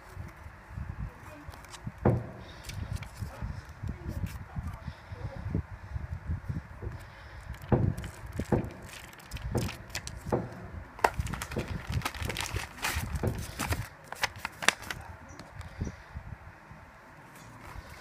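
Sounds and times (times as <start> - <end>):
plastic packaging crinkling: 7.5 - 10.4, 11.0 - 15.5.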